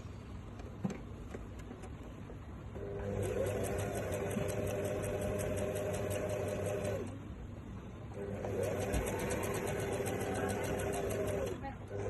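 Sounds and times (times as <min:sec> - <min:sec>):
sewing machine running: 0:02.8 - 0:07.1, 0:08.2 - 0:12.0.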